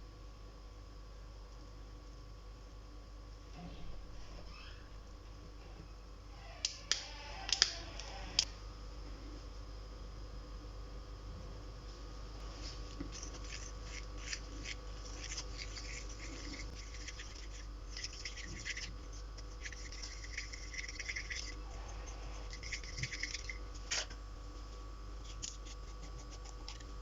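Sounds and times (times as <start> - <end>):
dry scratching and scraping: 12.4 - 27.0.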